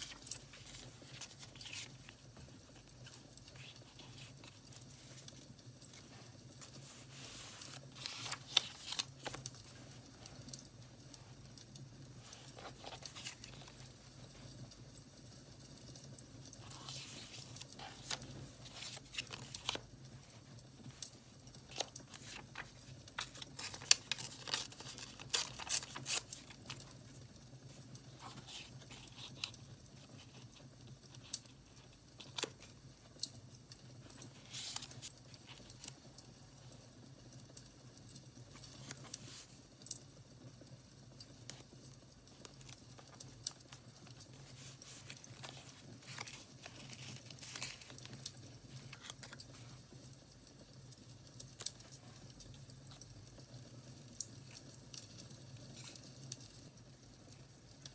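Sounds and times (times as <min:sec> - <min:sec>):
paper tearing and crinkling: 0:00.0 - 0:05.4, 0:06.0 - 0:09.6, 0:12.2 - 0:14.0, 0:16.6 - 0:21.0, 0:21.6 - 0:30.6, 0:31.2 - 0:32.8, 0:34.1 - 0:35.9, 0:42.4 - 0:49.7.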